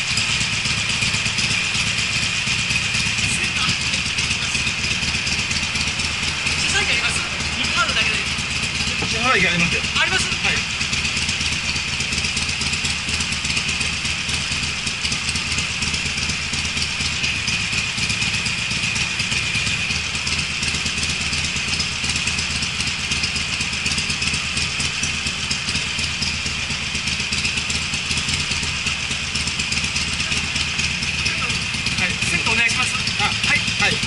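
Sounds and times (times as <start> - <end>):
motorcycle engine idling: 0.0 - 34.0.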